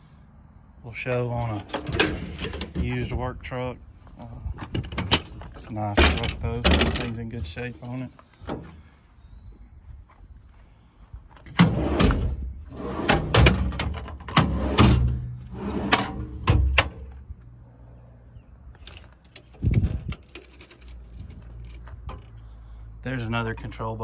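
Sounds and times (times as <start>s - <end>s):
metal clanks and knocks: 1.6s - 3.2s, 4.6s - 7.8s.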